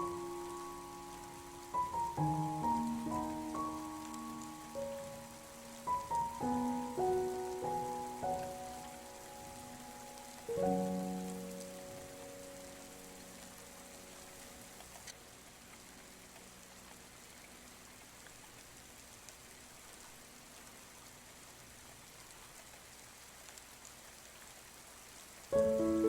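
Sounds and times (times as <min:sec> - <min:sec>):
piano notes: 0:00.0 - 0:16.4, 0:25.5 - 0:26.0
rain heard from indoors: 0:00.0 - 0:26.0.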